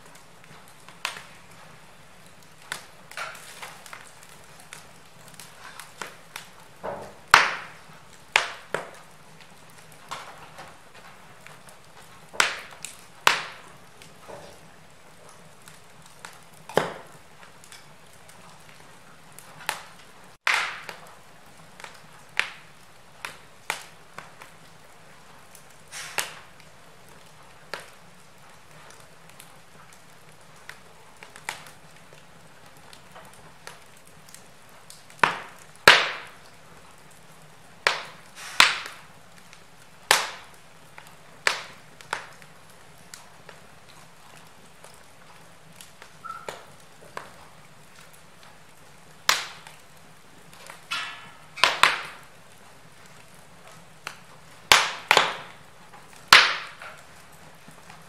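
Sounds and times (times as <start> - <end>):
fire hissing: 0.0 - 44.9
wood fire crackling and popping: 0.0 - 58.0.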